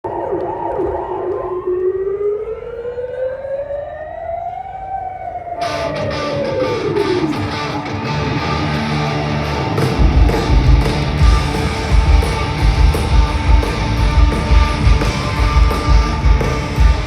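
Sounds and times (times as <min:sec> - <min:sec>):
siren-like wail: 0:00.0 - 0:17.0
live rock band: 0:05.6 - 0:17.0.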